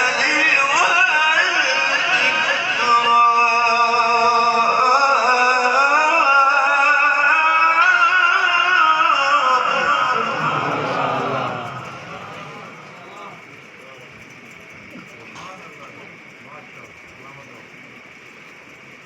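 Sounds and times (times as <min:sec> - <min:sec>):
man chanting melodically: 0:00.0 - 0:13.8.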